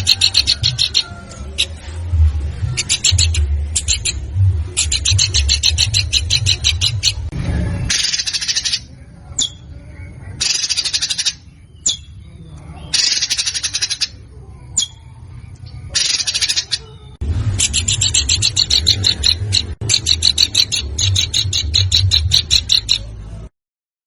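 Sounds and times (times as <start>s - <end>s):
low hum: 0.0s - 8.1s, 17.1s - 23.5s
songbird harsh rapid calls: 7.9s - 9.6s, 10.4s - 12.2s, 12.8s - 14.2s, 15.9s - 17.0s, 17.6s - 23.1s.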